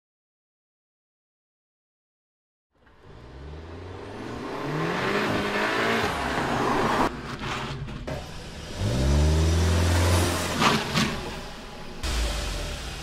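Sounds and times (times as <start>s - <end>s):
car engine revving: 2.8s - 7.2s, 8.1s - 13.0s.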